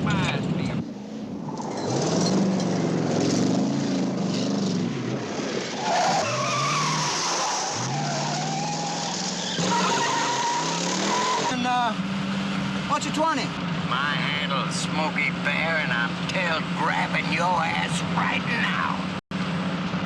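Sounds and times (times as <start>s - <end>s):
car engine revving hard: 1.8s - 12.9s
tyres squealing: 5.8s - 12.0s.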